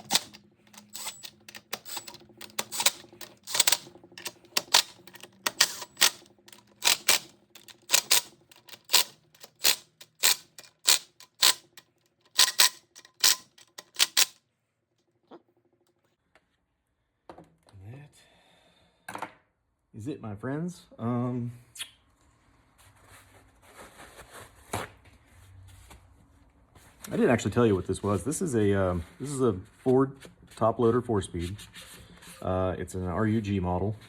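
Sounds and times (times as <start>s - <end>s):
hand ratchet clicking: 0.0s - 14.4s.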